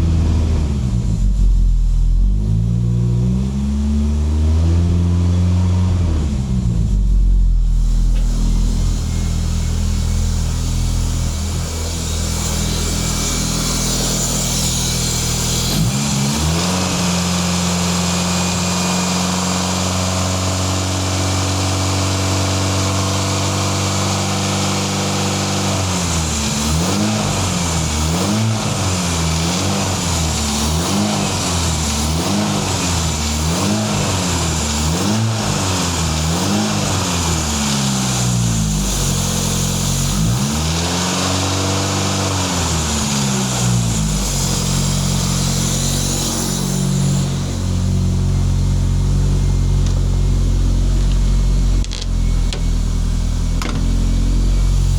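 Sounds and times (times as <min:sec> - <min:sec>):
engine revving: 0:00.0 - 0:54.9
car engine idling: 0:06.3 - 0:21.7, 0:42.8 - 0:54.9.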